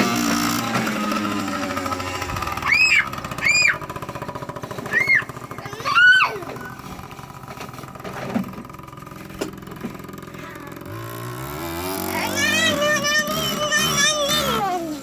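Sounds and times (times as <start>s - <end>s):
dirt bike engine putter: 6.4s - 14.4s.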